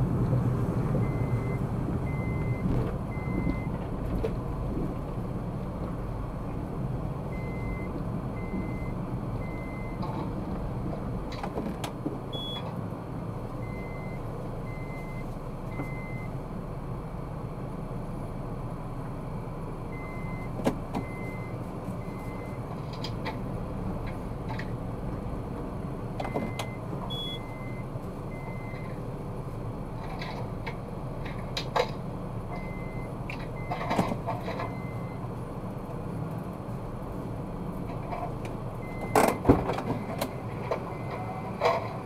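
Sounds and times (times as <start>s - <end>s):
car engine and road noise: 0.0s - 42.0s
short electronic beeps: 12.4s - 12.6s, 26.3s - 28.8s.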